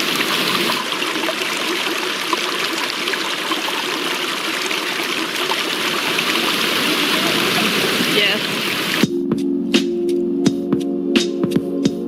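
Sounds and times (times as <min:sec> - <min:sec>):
water trickling: 0:00.0 - 0:09.0.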